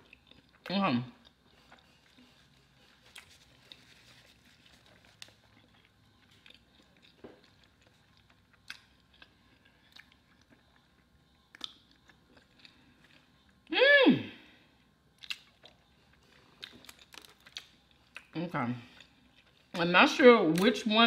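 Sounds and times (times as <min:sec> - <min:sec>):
person chewing food: 0:00.0 - 0:13.7, 0:14.8 - 0:19.8.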